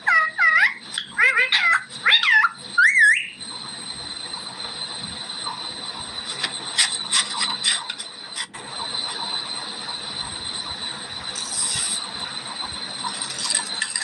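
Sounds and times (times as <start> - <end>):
parrot screeching: 0.0 - 3.4.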